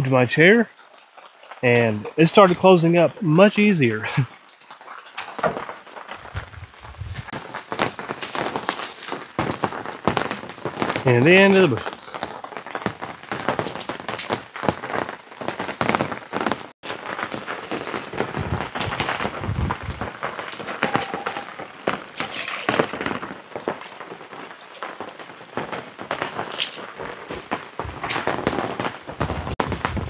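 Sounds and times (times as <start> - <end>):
rain falling: 0.0 - 30.0
camping gear being handled: 6.1 - 7.3, 17.8 - 21.7.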